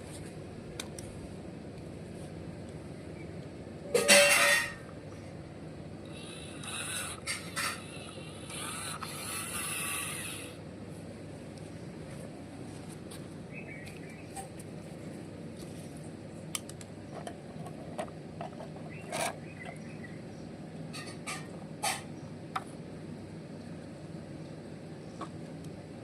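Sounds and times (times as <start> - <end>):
electric motors humming: 4.8 - 26.0
gear clicks and squeaks: 17.1 - 20.1.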